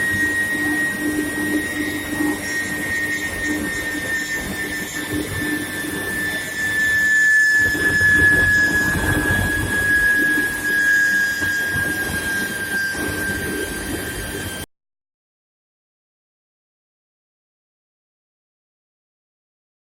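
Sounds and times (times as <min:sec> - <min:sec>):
high machine whine: 0:00.0 - 0:14.7.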